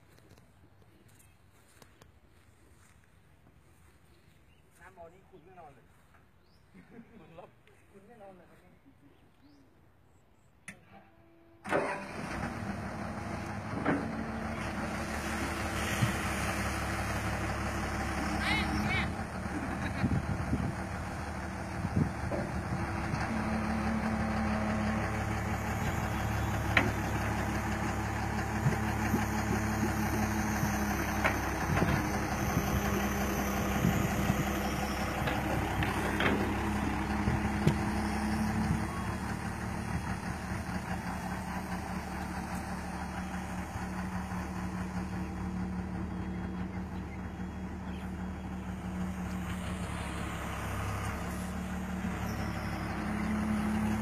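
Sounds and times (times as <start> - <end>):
excavator diesel engine running: 11.6 - 54.0.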